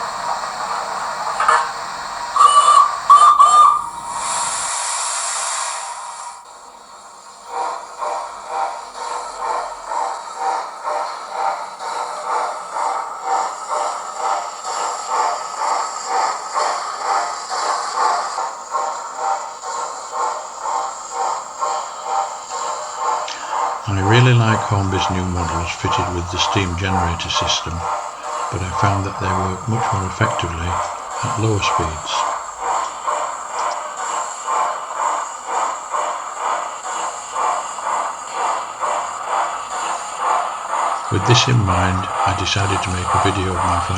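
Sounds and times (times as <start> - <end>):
steady hiss: 0.0 - 8.0, 20.6 - 43.9
steam locomotive chuffs from speaker: 0.0 - 43.9.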